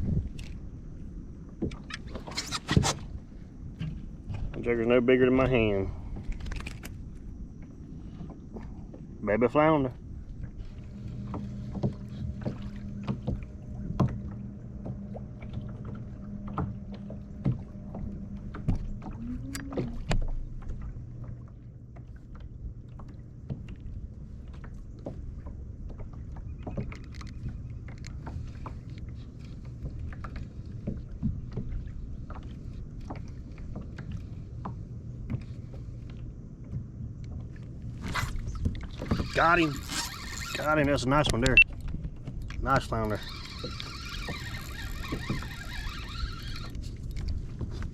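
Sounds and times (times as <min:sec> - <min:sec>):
low steady hum: 0:00.0 - 0:47.9
knocks and clicks of gear: 0:32.3 - 0:47.9.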